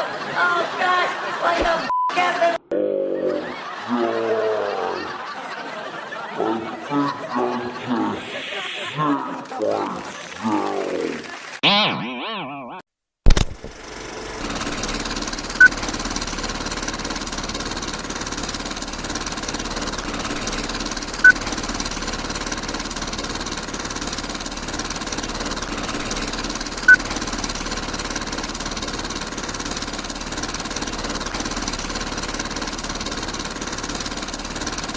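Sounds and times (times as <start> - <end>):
small motor rattling: 9.4 - 11.6, 13.6 - 34.9.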